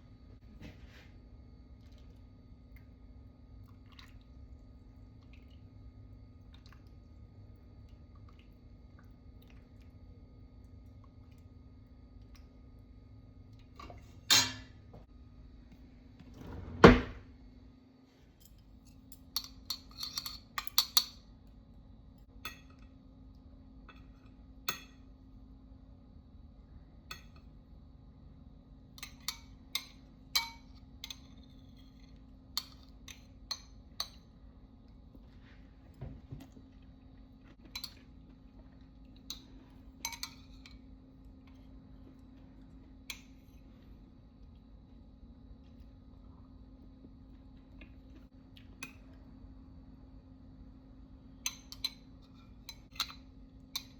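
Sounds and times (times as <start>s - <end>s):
faint steady hum: 0.0s - 53.9s
dishes and utensils clinking: 13.8s - 14.8s, 18.4s - 21.2s.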